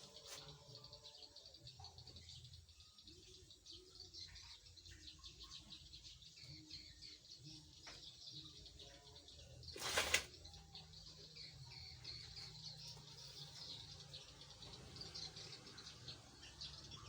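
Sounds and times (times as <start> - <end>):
small birds chirping: 0.0 - 17.0
wings flapping rustle: 9.8 - 10.3.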